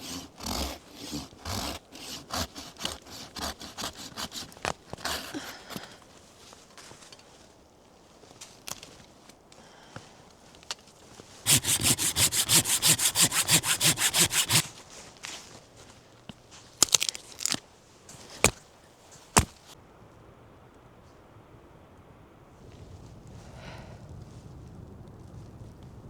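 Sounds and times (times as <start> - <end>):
hand saw cutting wood: 0.0 - 6.0, 11.5 - 14.7, 19.4 - 19.6.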